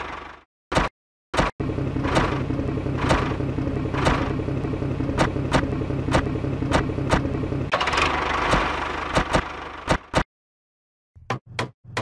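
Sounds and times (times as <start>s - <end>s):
diesel engine knocking: 1.4s - 10.2s.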